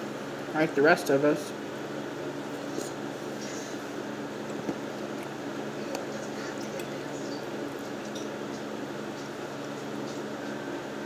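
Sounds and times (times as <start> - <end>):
person chewing soft food: 2.6 - 10.2.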